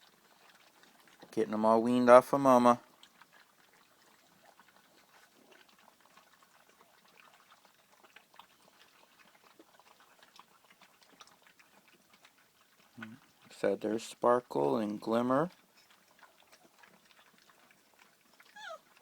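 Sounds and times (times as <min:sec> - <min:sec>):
puppies eating: 0:00.0 - 0:19.0.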